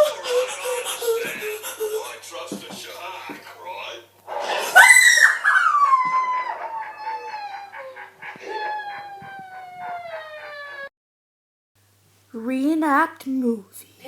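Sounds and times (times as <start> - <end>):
dog howling: 0.0 - 1.6, 4.3 - 10.9.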